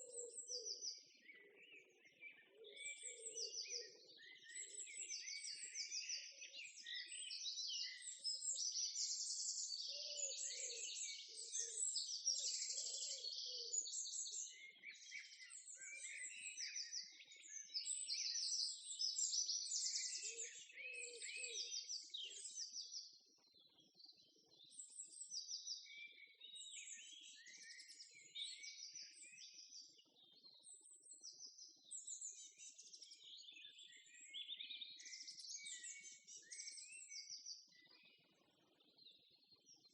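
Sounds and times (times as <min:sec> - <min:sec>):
small birds singing and chirping: 0:00.0 - 0:39.9.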